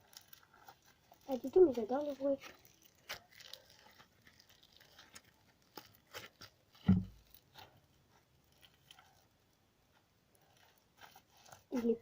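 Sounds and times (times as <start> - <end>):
slime squeezed by hand: 0.0 - 7.8, 10.4 - 12.0
loud thump: 6.9 - 7.2.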